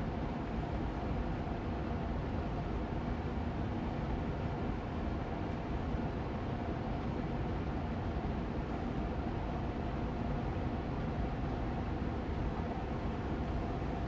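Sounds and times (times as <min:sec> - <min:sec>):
air purifier fan running: 0:00.0 - 0:14.0.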